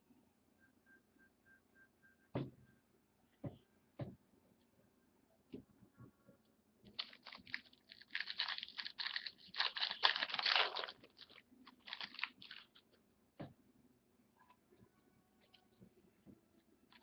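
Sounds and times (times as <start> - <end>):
foil wrapper crinkling and tearing: 7.0 - 12.8.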